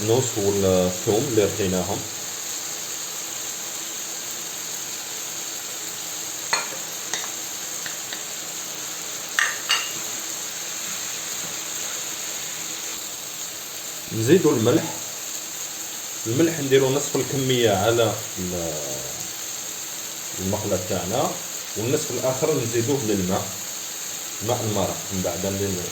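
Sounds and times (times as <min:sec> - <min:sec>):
vegetables sizzling in oil: 0:00.0 - 0:25.9
utensil knocking against pan: 0:06.5 - 0:08.3, 0:09.4 - 0:10.0.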